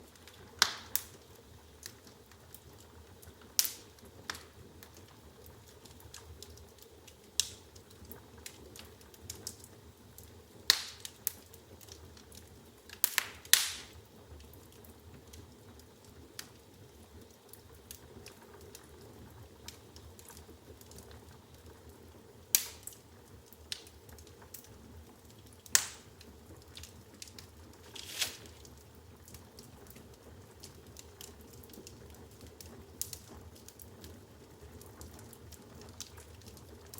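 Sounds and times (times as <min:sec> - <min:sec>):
firewood crackling: 0:00.0 - 0:36.9
sharp pops from fire: 0:00.1 - 0:16.6, 0:22.5 - 0:36.9
hiss of flame: 0:25.7 - 0:28.9.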